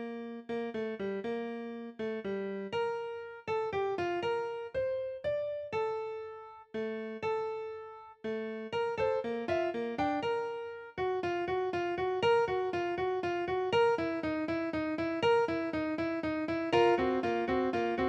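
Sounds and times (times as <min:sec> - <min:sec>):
slow piano piece: 0:00.0 - 0:18.0.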